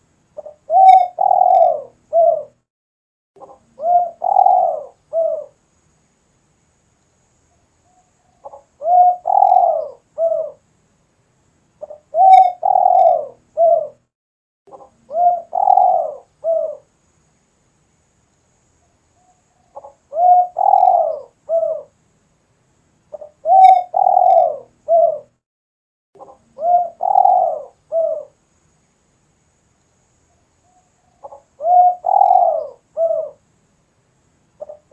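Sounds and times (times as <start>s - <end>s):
dove cooing: 0.4s - 2.6s, 3.4s - 5.6s, 8.4s - 10.6s, 11.8s - 14.0s, 14.7s - 16.9s, 19.7s - 21.9s, 23.1s - 25.3s, 26.2s - 28.4s, 31.2s - 33.4s, 34.6s - 34.9s.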